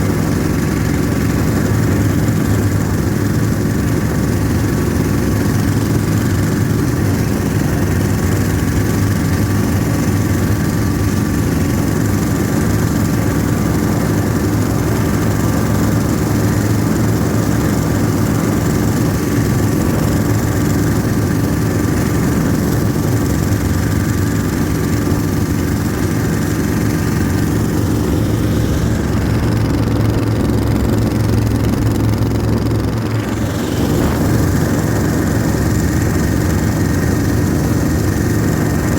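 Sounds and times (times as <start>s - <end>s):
diesel snowmobile engine running: 0.0s - 38.9s
thin steady whine: 13.3s - 38.9s.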